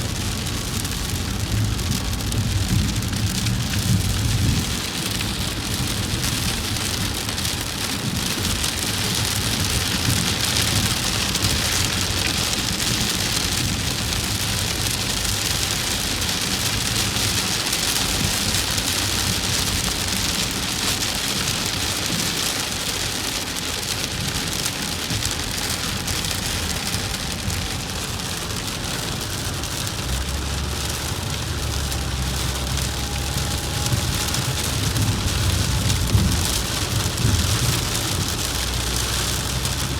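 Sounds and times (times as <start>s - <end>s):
heavy rain on a vehicle: 0.0s - 39.9s
engine and road drone: 24.2s - 39.9s.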